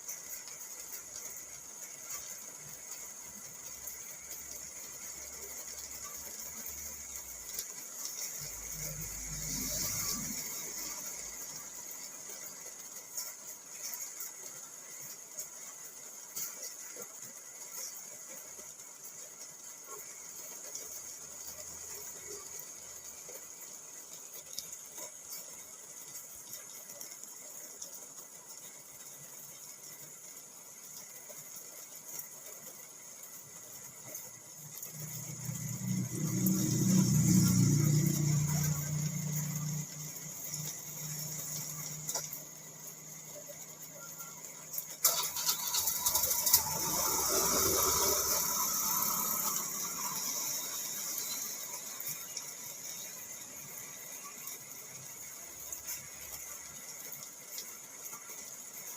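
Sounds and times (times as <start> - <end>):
rain pattering on a car: 0.0 - 58.9
vehicle driving past: 8.1 - 11.6, 34.8 - 42.6, 46.3 - 52.0.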